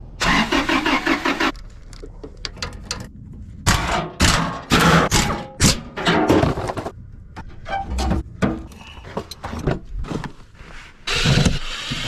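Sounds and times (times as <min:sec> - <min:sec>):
engine cranking without starting: 0:00.2 - 0:01.6.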